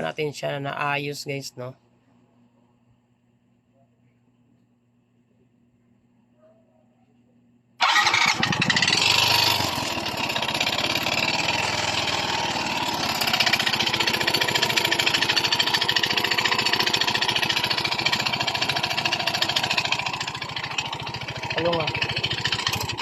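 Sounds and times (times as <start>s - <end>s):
scooter engine running: 7.8s - 23.0s
metallic clanking rattle: 8.5s - 23.0s.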